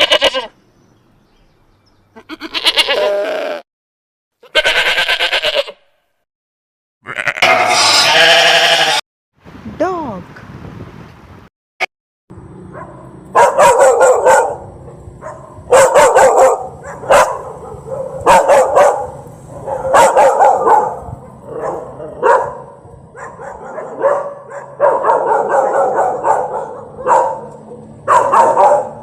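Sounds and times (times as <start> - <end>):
dog barking: 12.7 - 29.0.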